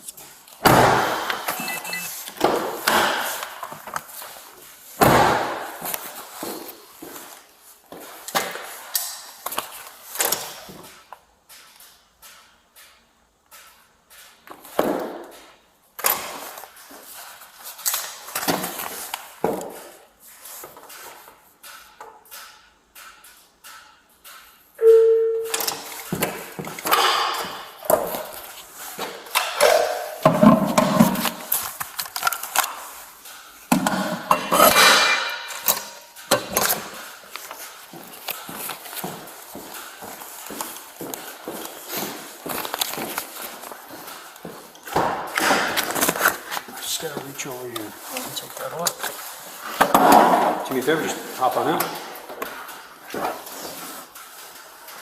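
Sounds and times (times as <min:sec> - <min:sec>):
loud echoing clunks and bangs: 0:00.6 - 0:01.6, 0:05.0 - 0:05.8
objects being handled: 0:25.5 - 0:55.0.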